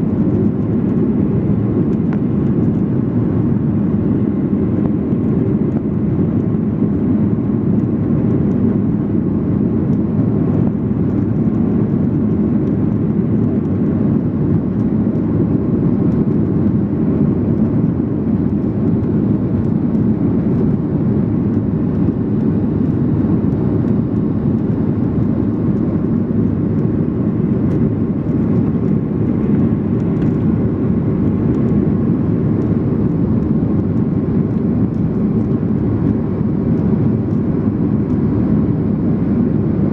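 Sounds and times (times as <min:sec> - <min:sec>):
jet engines in airplane cabin: 0:00.0 - 0:39.9.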